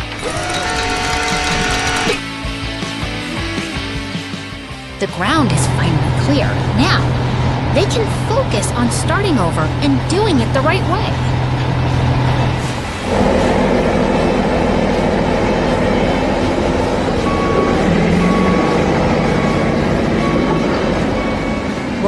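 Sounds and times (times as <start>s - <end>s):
heavy truck engine running: 0.0s - 22.0s
backup alarm beeping: 15.1s - 22.0s.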